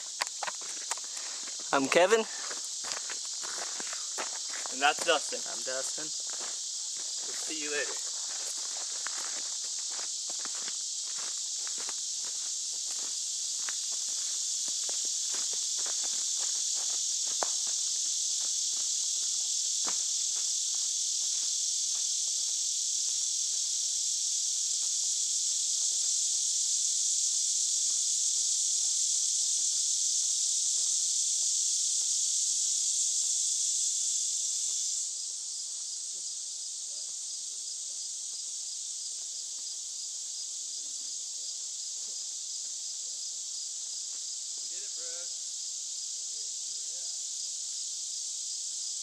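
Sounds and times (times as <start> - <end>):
footsteps: 0.0 - 23.7
insects buzzing: 0.0 - 49.0.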